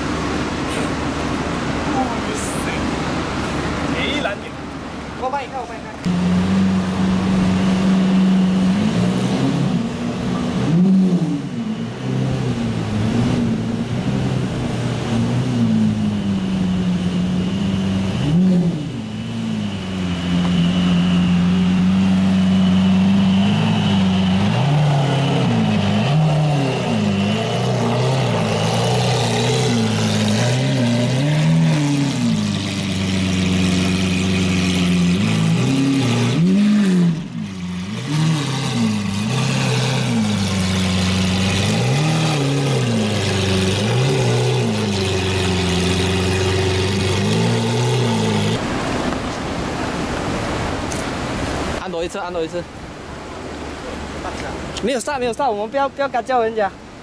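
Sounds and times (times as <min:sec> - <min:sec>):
engine revving: 0:06.0 - 0:48.9
car engine idling: 0:38.6 - 0:49.4.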